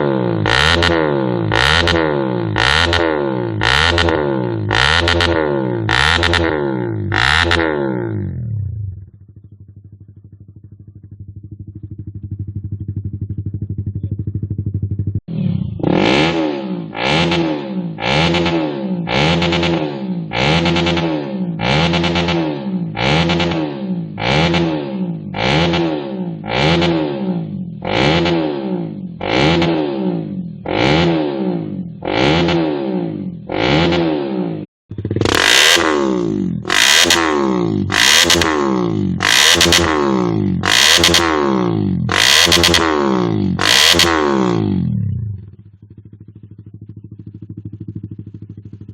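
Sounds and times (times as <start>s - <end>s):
motorcycle engine revving: 0.0s - 48.9s
motorcycle engine idling: 5.8s - 18.3s, 34.9s - 48.9s.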